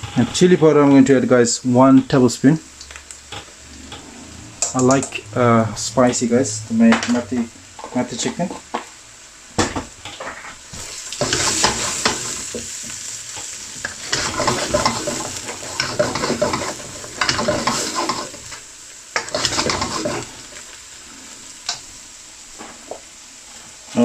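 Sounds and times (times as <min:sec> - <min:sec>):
spices sizzling in oil: 0:00.0 - 0:24.0
utensil scraping a pan: 0:10.1 - 0:18.6, 0:19.2 - 0:20.6.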